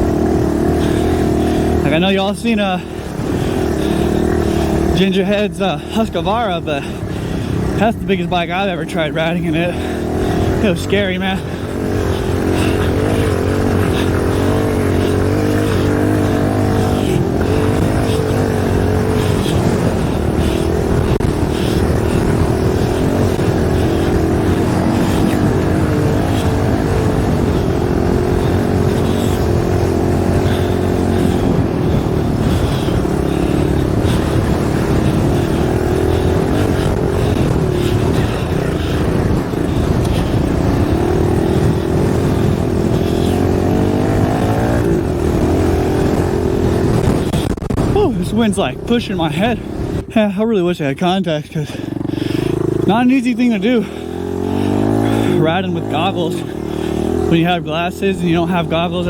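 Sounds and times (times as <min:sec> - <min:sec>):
dirt bike engine running: 0:00.0 - 0:59.0
wind noise on microphone: 0:16.2 - 0:50.2.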